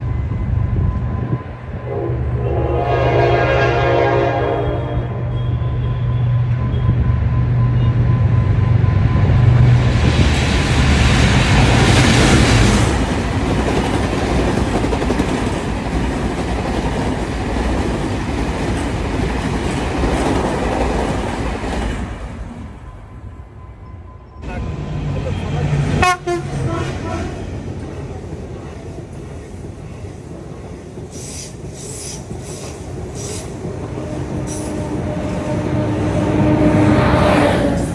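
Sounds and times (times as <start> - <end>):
locomotive engine drone: 0.0 - 14.5, 22.2 - 29.8, 32.6 - 37.9
train horn: 0.7 - 7.0, 24.4 - 27.6, 33.2 - 37.9
train cars rolling with wheel clatter: 5.3 - 37.9.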